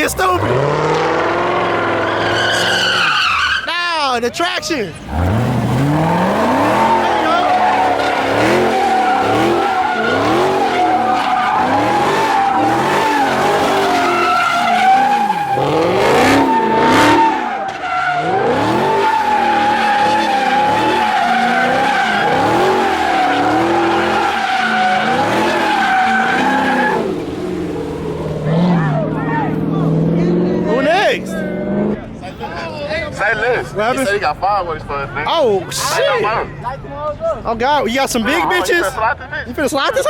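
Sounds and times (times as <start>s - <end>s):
car engine revving: 0.0s - 3.5s, 4.9s - 32.4s
car tyres screeching: 0.0s - 39.0s.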